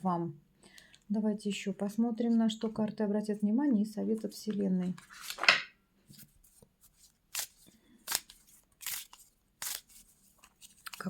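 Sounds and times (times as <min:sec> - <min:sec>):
cards swishing and snapping: 0:06.2 - 0:11.0.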